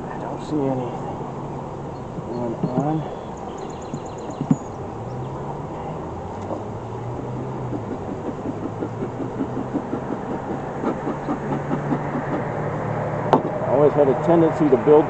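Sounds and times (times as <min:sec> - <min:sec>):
bee colony humming: 0:00.0 - 0:15.0
bees buzzing close by: 0:00.0 - 0:15.0.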